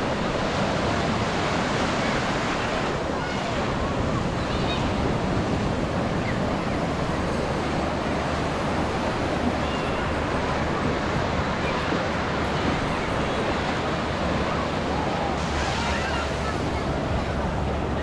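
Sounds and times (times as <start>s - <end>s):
surf breaking on a beach: 0.0s - 18.0s
wind buffeting microphone: 0.0s - 18.0s.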